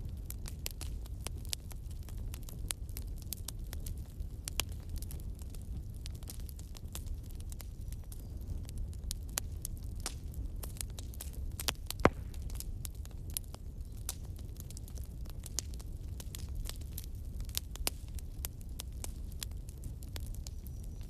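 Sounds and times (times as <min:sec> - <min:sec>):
campfire crackling and popping: 0:00.0 - 0:21.0
low fire rumble: 0:00.0 - 0:21.0.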